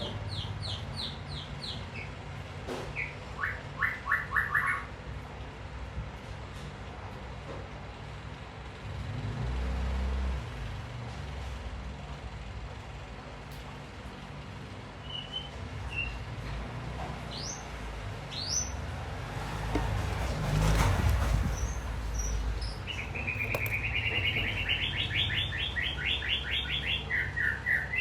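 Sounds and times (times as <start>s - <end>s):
bird chirps: 2.9s - 4.9s, 21.5s - 28.0s.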